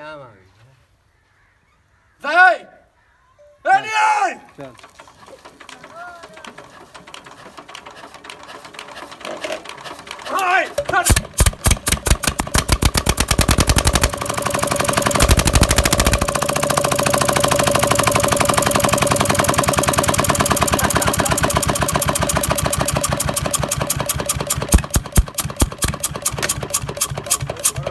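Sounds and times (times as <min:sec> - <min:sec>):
diesel engine running: 0:10.9 - 0:27.9.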